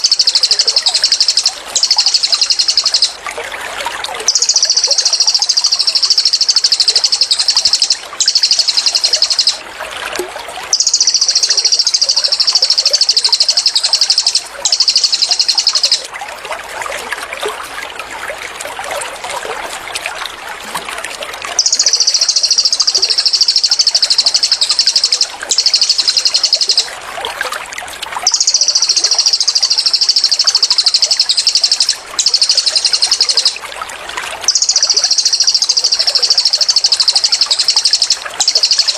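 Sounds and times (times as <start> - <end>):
bird singing fast high trills: 0.0 - 3.2, 4.3 - 9.6, 10.7 - 16.1, 21.6 - 26.9, 28.2 - 33.6, 34.5 - 38.9
faint bird chirps: 0.0 - 3.2, 4.2 - 9.6, 10.7 - 16.1, 21.6 - 26.9, 28.2 - 33.6, 34.5 - 38.9
running water trickling: 0.0 - 38.9.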